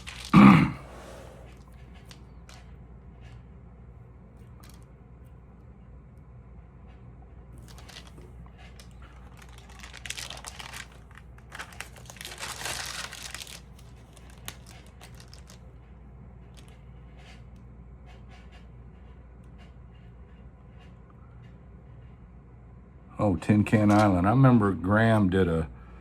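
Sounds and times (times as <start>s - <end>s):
album pages rustling: 0.0s - 0.5s, 9.2s - 15.6s.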